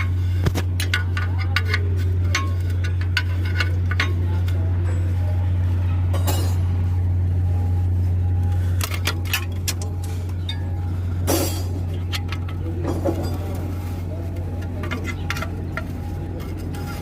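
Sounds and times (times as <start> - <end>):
metal tools clinking: 8.8 - 13.8.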